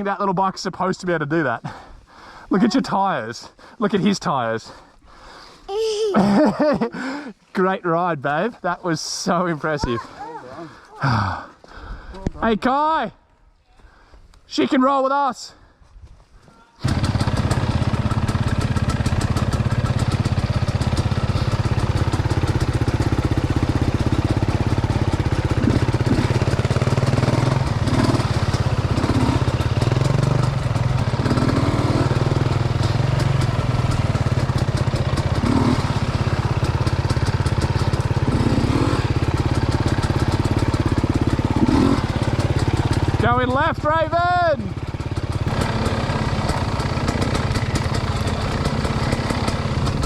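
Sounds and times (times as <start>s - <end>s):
dirt bike engine running: 16.8s - 50.0s.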